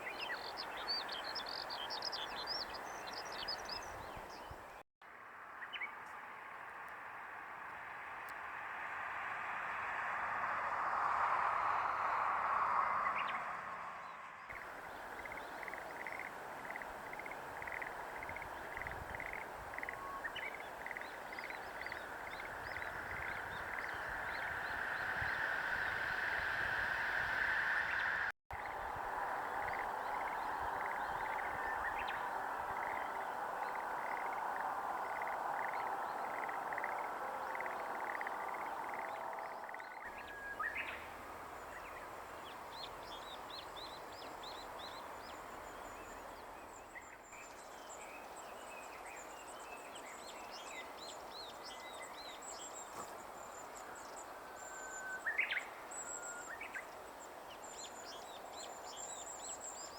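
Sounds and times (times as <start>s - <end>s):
background bird chorus: 0.0s - 59.9s.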